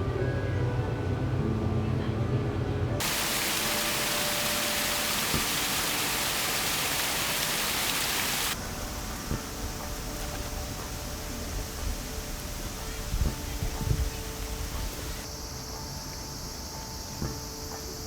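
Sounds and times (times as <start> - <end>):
water falling down cascade: 3.0 - 15.3.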